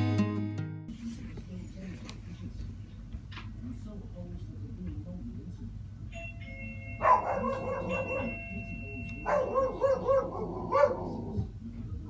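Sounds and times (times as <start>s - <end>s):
doorbell chime: 6.1s - 9.8s
dog barking: 7.0s - 8.4s, 9.2s - 11.5s.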